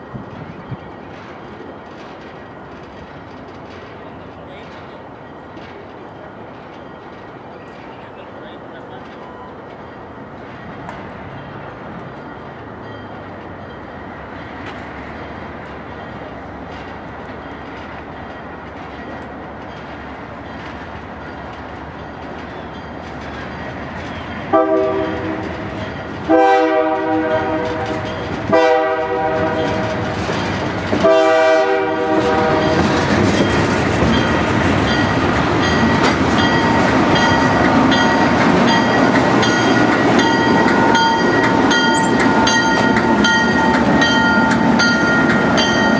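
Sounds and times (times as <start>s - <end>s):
train rumbling past: 0.0s - 45.9s
train chime horn blasts: 24.5s - 25.6s, 26.3s - 29.9s, 31.0s - 32.9s.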